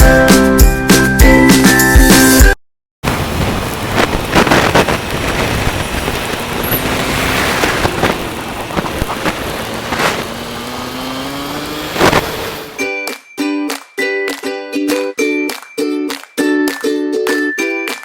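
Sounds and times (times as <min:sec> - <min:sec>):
bus road and engine noise: 0:03.0 - 0:13.0.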